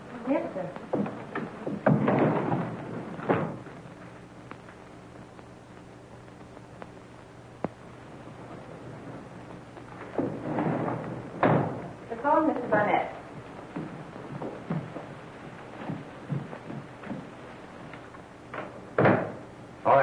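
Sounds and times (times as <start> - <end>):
low hum and hiss: 0.0 - 20.0
dull thuds: 0.8 - 3.9, 9.0 - 12.0, 12.6 - 18.0.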